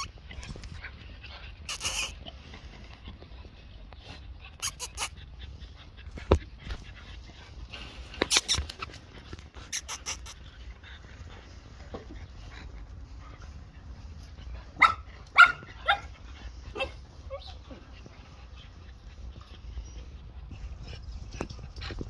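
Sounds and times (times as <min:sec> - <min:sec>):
puppies whimpering and yipping: 0:00.0 - 0:00.8, 0:01.7 - 0:02.4, 0:04.5 - 0:05.6, 0:08.1 - 0:10.6, 0:12.4 - 0:20.8
puppy yelping: 0:01.7 - 0:02.2, 0:04.6 - 0:05.2, 0:08.2 - 0:09.0, 0:09.7 - 0:10.4, 0:14.8 - 0:16.1, 0:16.7 - 0:17.8.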